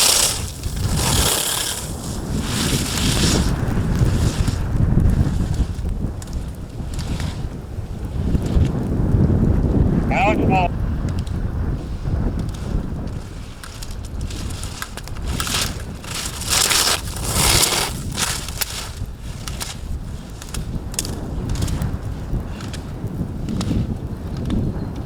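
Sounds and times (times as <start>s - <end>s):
ski edges scraping snow: 0.0s - 8.6s, 11.8s - 22.9s
wind rumble on microphone: 0.0s - 25.0s.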